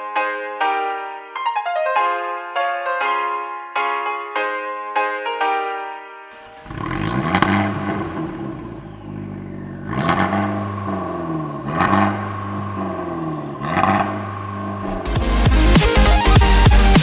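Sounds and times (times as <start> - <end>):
car engine revving: 6.4 - 17.0.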